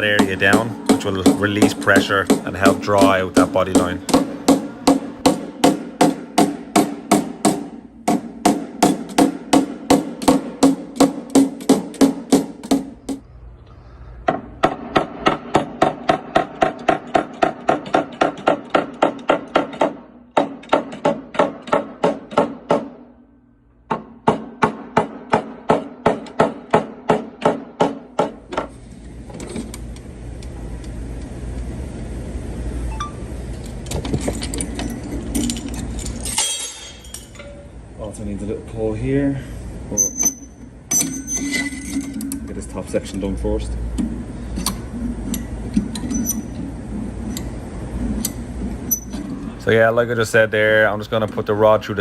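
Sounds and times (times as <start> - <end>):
hammer tapping on sheet metal: 0.0 - 13.2, 14.3 - 23.0, 23.9 - 28.4
steady low noise: 13.0 - 15.0.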